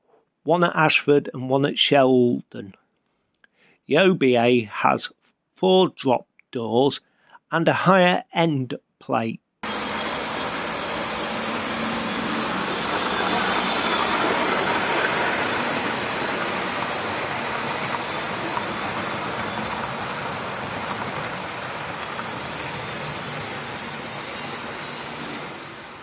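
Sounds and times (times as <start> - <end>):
model train rolling on track: 9.6 - 26.0.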